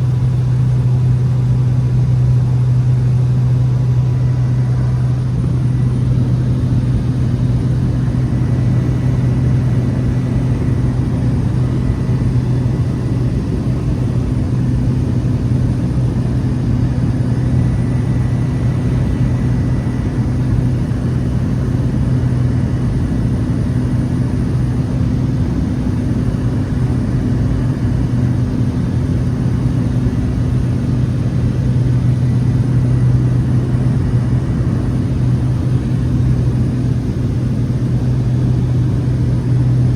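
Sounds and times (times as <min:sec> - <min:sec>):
turboprop engine drone: 0:00.0 - 0:39.9.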